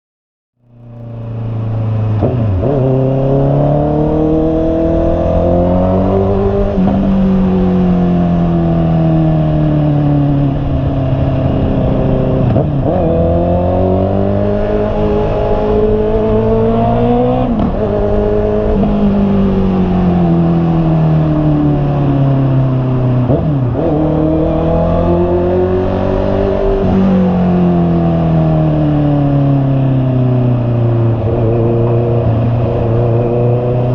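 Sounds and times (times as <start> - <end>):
motorcycle engine revving: 0.6 - 33.9
wind and road noise: 0.6 - 33.9.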